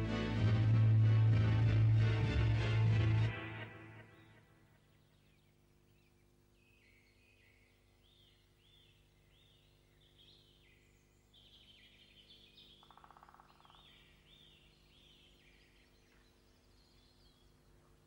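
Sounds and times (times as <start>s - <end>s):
bird song chirps: 3.6s - 18.0s.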